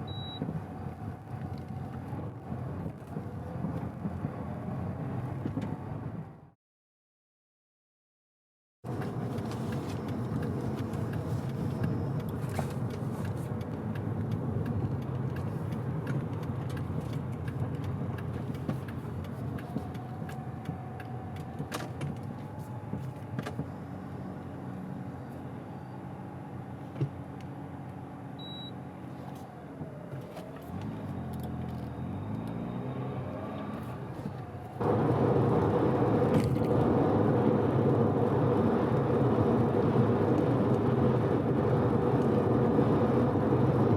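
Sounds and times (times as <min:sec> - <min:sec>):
short electronic beep: 0:00.0 - 0:00.4, 0:28.4 - 0:28.8
road noise: 0:00.0 - 0:06.6, 0:08.8 - 0:43.9
car engine: 0:08.9 - 0:43.9.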